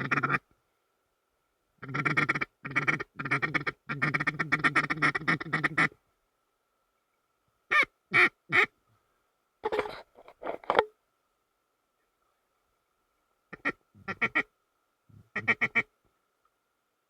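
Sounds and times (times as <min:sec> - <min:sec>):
duck quacking: 0:00.0 - 0:00.4, 0:01.8 - 0:06.0, 0:07.7 - 0:08.7, 0:13.5 - 0:14.5, 0:15.3 - 0:15.9.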